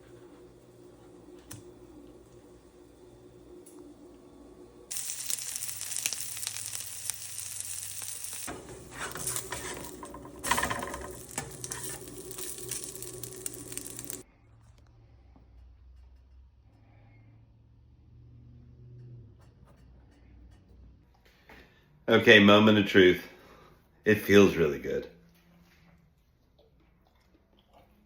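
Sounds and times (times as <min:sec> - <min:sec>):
sandwich sizzling in a frying pan: 0:00.0 - 0:14.2.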